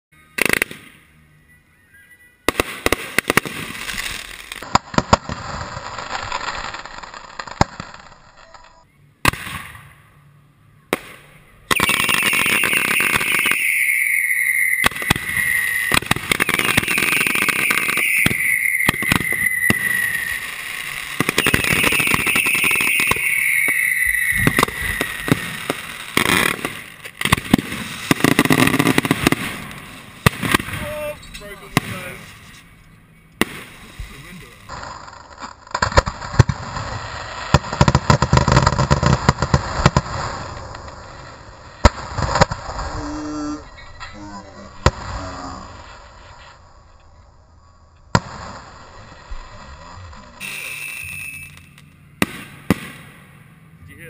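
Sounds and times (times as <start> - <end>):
fireworks falling whistles: 0.2 - 9.9, 11.1 - 44.0, 48.1 - 53.2
fireworks crackling pops: 0.4 - 1.0, 2.5 - 9.9, 10.9 - 32.7, 33.4 - 43.1, 44.8 - 47.2, 47.9 - 53.4.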